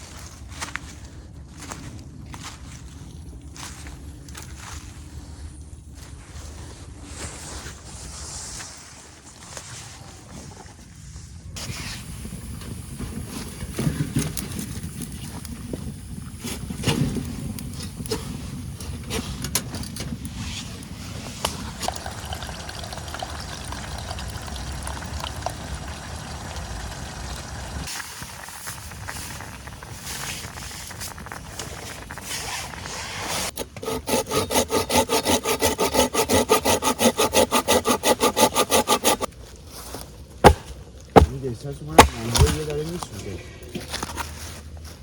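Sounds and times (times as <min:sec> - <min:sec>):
hand saw cutting wood: 0:33.5 - 0:39.3.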